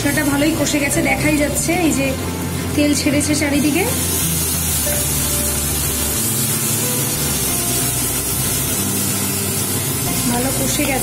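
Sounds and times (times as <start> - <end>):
paste sizzling in oil: 0.0 - 11.0.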